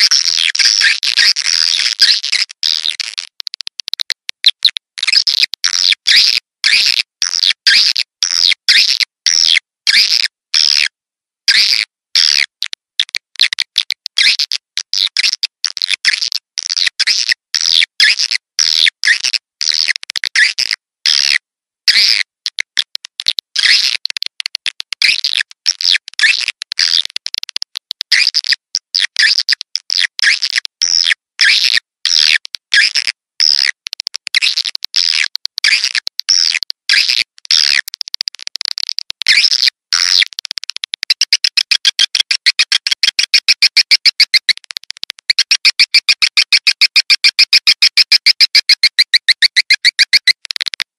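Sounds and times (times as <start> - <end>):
high-pitched bird chirps: 41.2 - 50.8.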